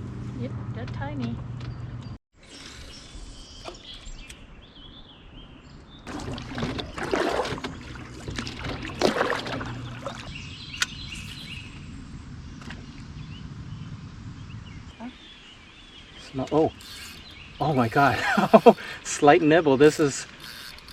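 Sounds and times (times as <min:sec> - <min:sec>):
knocking and rustling in a canoe: 0:06.1 - 0:10.3
faint bird chirps: 0:09.8 - 0:12.0.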